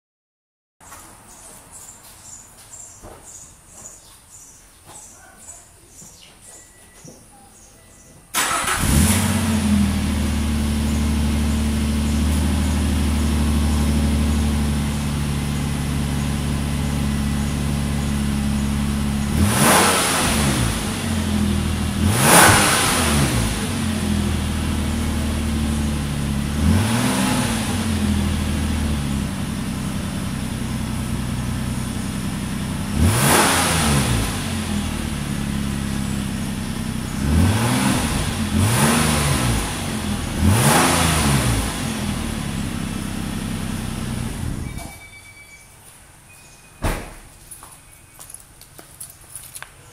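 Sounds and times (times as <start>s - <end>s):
car engine idling: 8.3s - 44.8s
engine revving: 8.3s - 44.8s.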